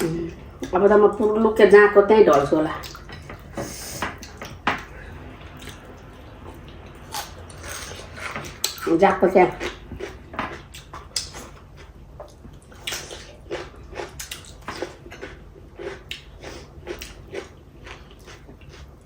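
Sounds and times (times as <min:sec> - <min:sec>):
low steady hum: 0:00.0 - 0:19.0
wet chewing and mouth smacks: 0:09.6 - 0:18.8.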